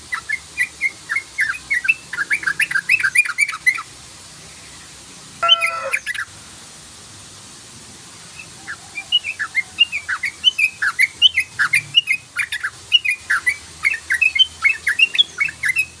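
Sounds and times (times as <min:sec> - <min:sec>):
bird chattering song: 0:05.4 - 0:06.2
bird harsh call: 0:05.4 - 0:06.2.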